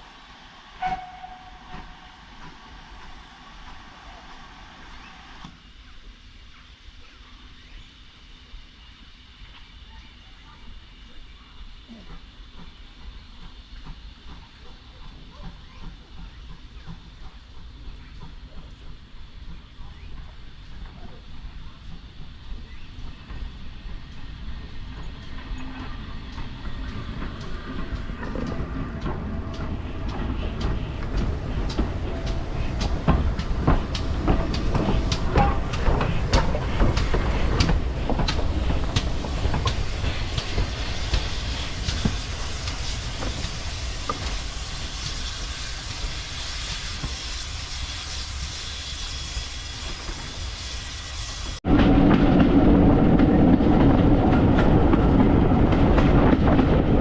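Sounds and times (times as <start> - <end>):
train rumble: 0.0 - 57.0
wheels clicking over rail joints: 12.0 - 47.2.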